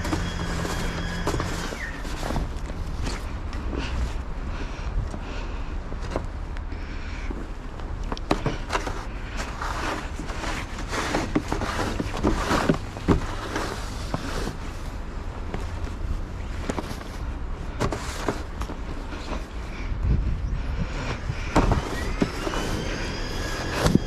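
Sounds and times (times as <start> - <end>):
steady low rumble: 14.6 - 22.2.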